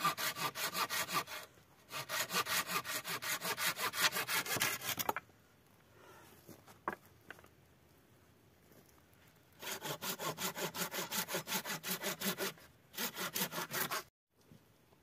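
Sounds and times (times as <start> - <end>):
hand saw cutting wood: 0.0 - 5.2, 9.6 - 14.1.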